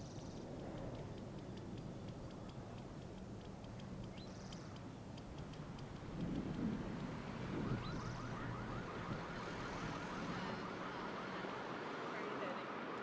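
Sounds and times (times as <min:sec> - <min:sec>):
low steady background: 0:00.0 - 0:13.0
bird calling: 0:04.1 - 0:05.0.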